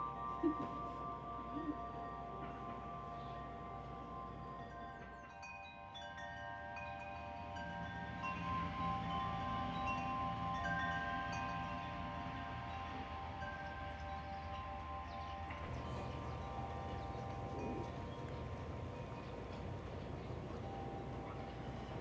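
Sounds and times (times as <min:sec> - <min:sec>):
chimes tinkling: 0:00.0 - 0:22.0
sustained hum of tones: 0:07.3 - 0:22.0.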